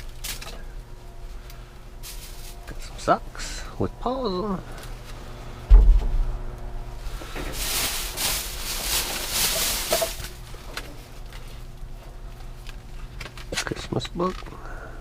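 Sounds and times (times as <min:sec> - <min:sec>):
bags rustling: 0:02.0 - 0:02.9, 0:07.0 - 0:11.7
low thump: 0:05.7 - 0:06.6.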